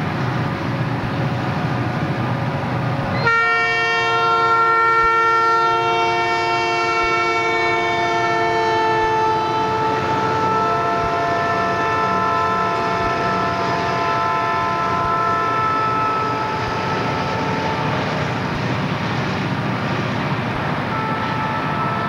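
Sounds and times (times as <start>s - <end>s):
diesel locomotives passing: 0.0s - 22.0s
multi-tone train horn: 3.1s - 19.0s, 20.8s - 22.0s.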